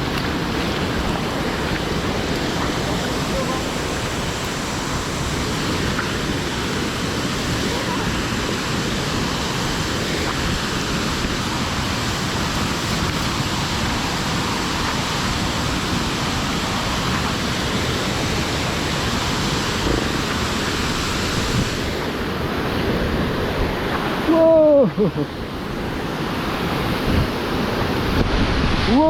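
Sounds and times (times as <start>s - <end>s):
waterfall rushing: 0.0s - 29.0s
wind buffeting microphone: 25.7s - 29.0s.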